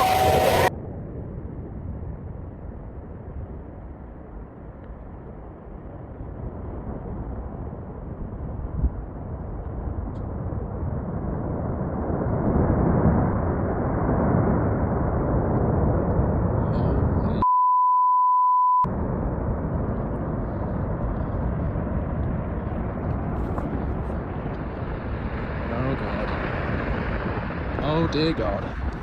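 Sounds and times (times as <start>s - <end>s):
censor bleep: 0.0s - 0.7s, 17.4s - 18.9s
steady rushing noise: 0.0s - 17.4s, 18.9s - 29.0s.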